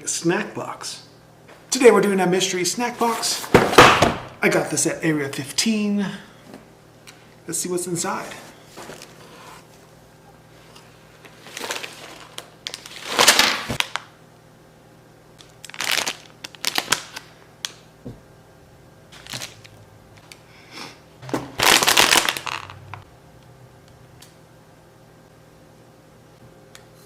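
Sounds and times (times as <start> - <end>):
packaging crinkling: 11.3 - 14.1, 15.4 - 17.8, 19.2 - 20.4, 21.5 - 23.0.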